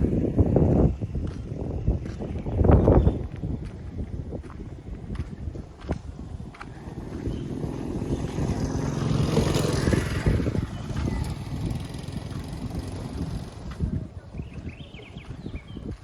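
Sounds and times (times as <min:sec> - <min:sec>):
motor vehicle driving past: 0:06.0 - 0:13.9.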